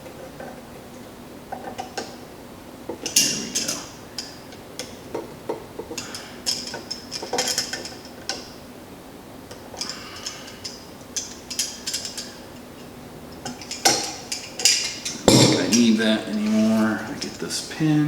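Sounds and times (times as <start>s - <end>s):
metal tools clinking: 3.0s - 5.0s, 5.8s - 8.4s, 9.8s - 17.6s.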